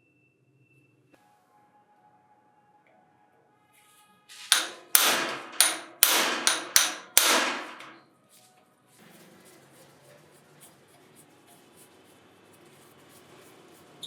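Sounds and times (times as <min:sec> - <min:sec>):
hammer striking metal: 0:04.3 - 0:08.0.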